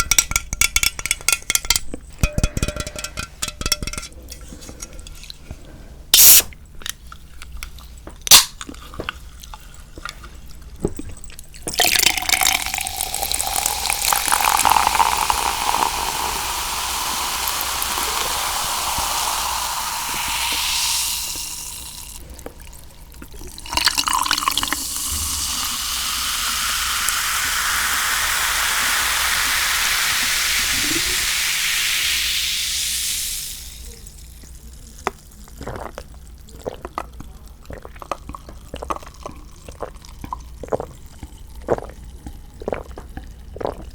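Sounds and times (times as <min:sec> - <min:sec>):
liquid pouring into a glass: 0:11.2 - 0:43.9.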